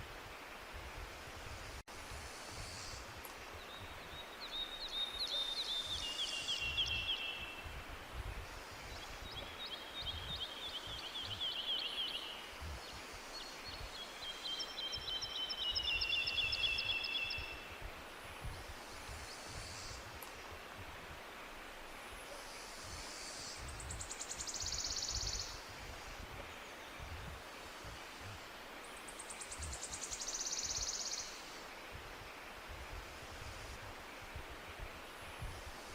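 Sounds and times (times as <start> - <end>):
songbird singing trills: 2.9 - 7.7, 8.9 - 17.8, 23.5 - 25.7, 28.8 - 31.5.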